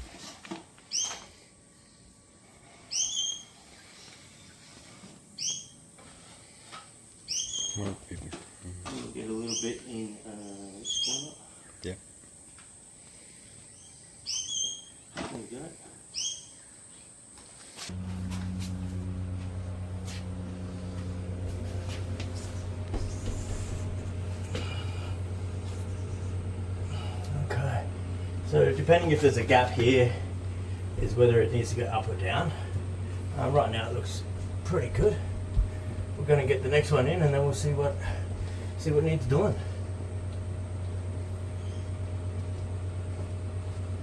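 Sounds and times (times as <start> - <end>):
bird calling: 0.9 - 1.3, 2.7 - 4.1, 7.3 - 8.1, 9.3 - 11.9, 13.7 - 15.1, 16.1 - 16.9
machine humming: 17.8 - 44.0.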